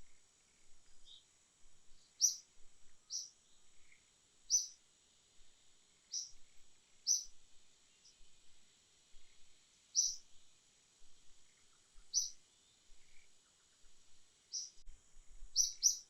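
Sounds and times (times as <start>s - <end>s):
bird chirping: 0.0s - 1.3s, 1.9s - 4.8s, 6.0s - 10.4s, 11.1s - 14.8s, 15.5s - 16.0s.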